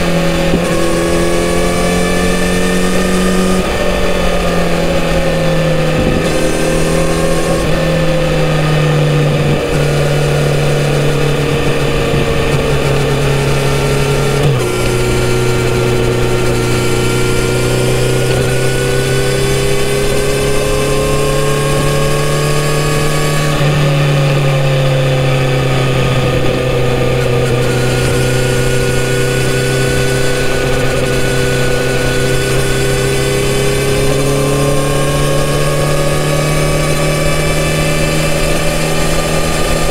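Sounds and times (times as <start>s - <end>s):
motorcycle engine cruising: 0.0s - 39.9s
wind rushing: 0.6s - 17.9s.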